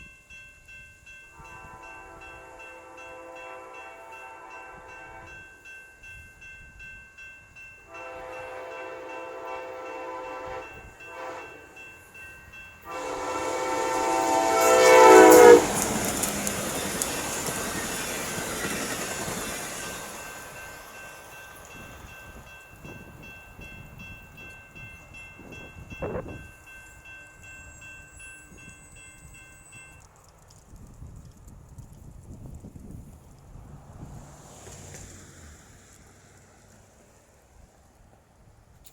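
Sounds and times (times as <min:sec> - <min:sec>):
train passing with rumble: 0:00.6 - 0:38.8
train air horn blasts: 0:01.4 - 0:05.4, 0:07.9 - 0:11.8, 0:12.8 - 0:16.2
train wheel clatter: 0:13.0 - 0:22.3, 0:29.0 - 0:33.6.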